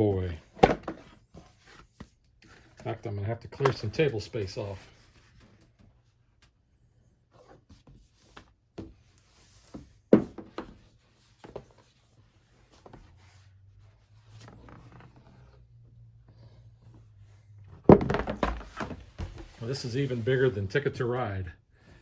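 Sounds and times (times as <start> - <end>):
boxes sliding and rustling: 7.3 - 21.4
boxes knocking on table: 10.1 - 10.8, 17.9 - 19.4.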